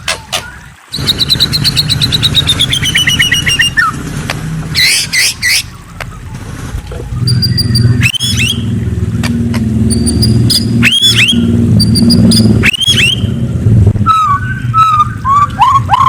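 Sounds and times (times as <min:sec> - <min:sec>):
songbird singing: 0:00.0 - 0:04.0, 0:07.1 - 0:08.8, 0:09.6 - 0:16.0
engine droning: 0:00.0 - 0:16.0.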